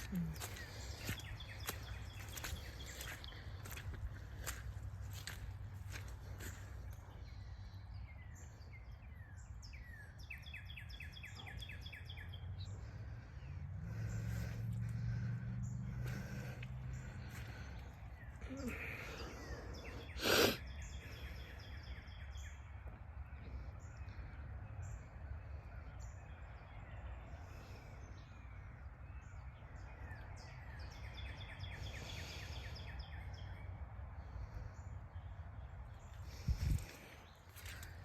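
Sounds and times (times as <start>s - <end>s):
bird calls: 0.0s - 38.0s
steady low rumble: 12.1s - 20.1s.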